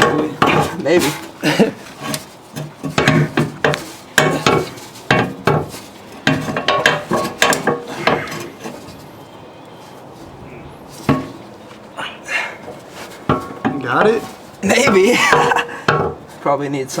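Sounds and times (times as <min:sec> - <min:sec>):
metal exhaust pipe clanking: 0:00.0 - 0:09.1, 0:10.8 - 0:11.6, 0:12.6 - 0:16.4.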